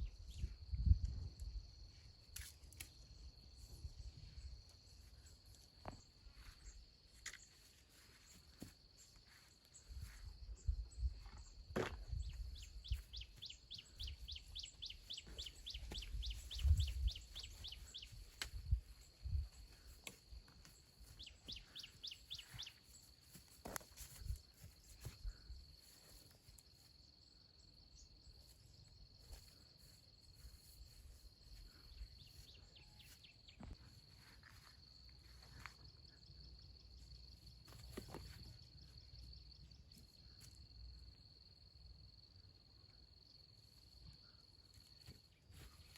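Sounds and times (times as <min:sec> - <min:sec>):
insect drone: 0:00.0 - 0:45.9
bird chirping: 0:12.1 - 0:19.4, 0:20.8 - 0:23.2.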